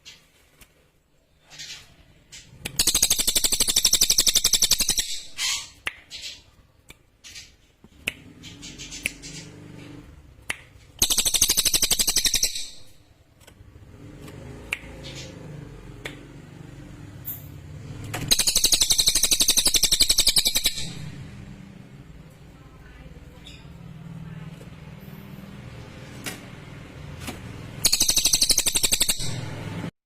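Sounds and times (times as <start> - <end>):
bird single chips: 10.6 - 13.0.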